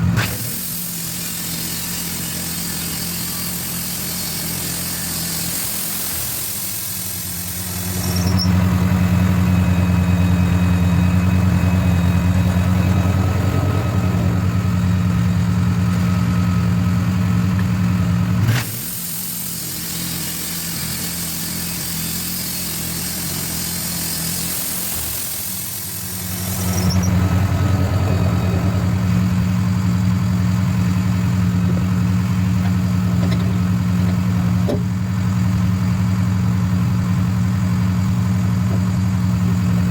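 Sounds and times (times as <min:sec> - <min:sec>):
sawmill gas engine running: 0:00.0 - 0:39.9
saw cutting hiss: 0:00.2 - 0:15.1, 0:18.5 - 0:34.6.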